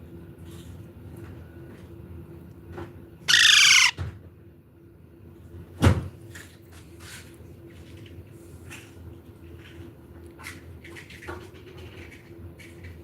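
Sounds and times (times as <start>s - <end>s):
parrot squawking: 3.3s - 4.0s.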